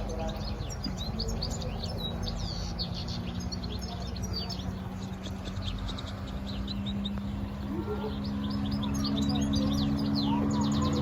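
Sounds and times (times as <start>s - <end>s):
goldfinch singing: 0.0s - 11.0s.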